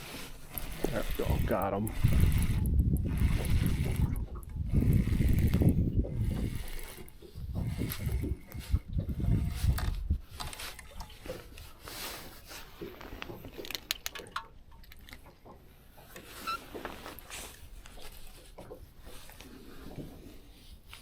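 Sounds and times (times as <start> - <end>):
fishing reel clicks: 0.3 - 8.8.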